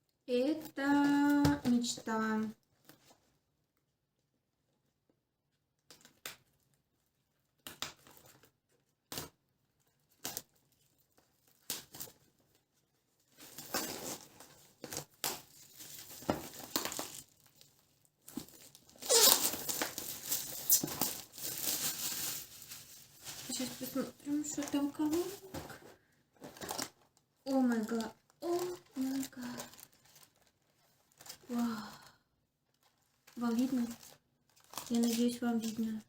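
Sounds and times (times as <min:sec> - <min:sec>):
wrapping paper tearing and crinkling: 0:13.3 - 0:25.6, 0:26.4 - 0:31.9, 0:33.3 - 0:36.0
packaging rustling and tapping: 0:13.4 - 0:27.0.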